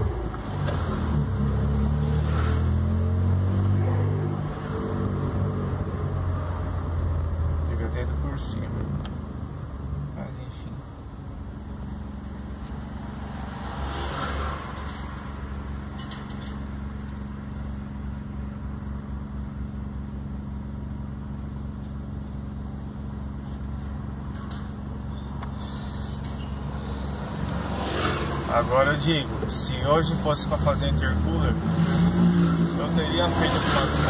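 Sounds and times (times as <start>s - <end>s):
road noise: 0.0s - 34.0s
car engine running: 15.1s - 34.0s.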